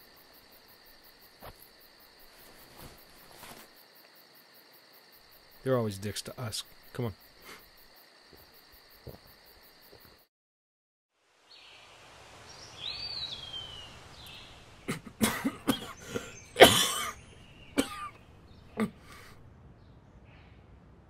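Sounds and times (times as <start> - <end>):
crickets chirping: 0.0 - 10.3, 11.6 - 19.4
man coughing: 14.9 - 18.2, 18.8 - 19.3.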